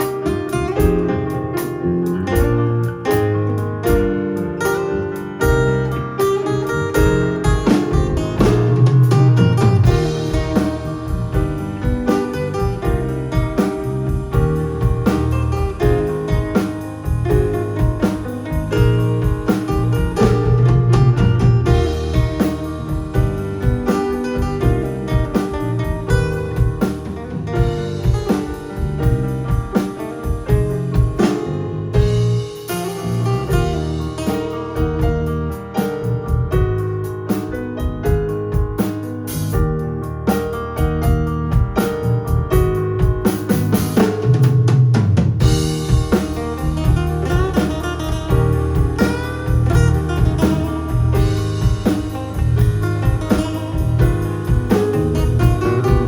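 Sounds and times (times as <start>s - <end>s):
bass notes: 0.0s - 56.0s
drum kit beat: 0.0s - 56.0s
plucked guitar: 0.0s - 56.0s
keyboard notes: 45.4s - 56.0s.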